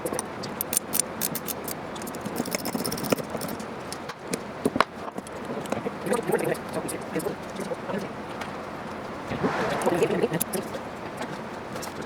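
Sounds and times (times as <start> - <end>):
metal hardware clinking: 0.5 - 3.6.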